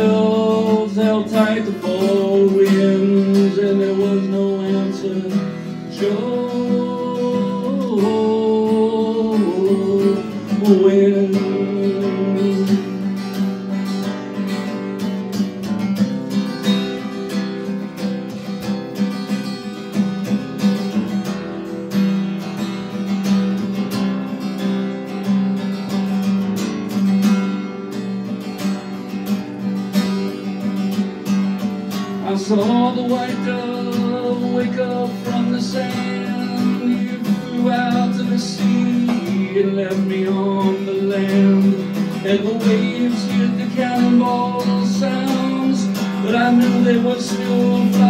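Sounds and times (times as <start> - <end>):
man singing: 0.0 - 13.6, 32.0 - 48.0
acoustic guitar strumming: 0.0 - 48.0.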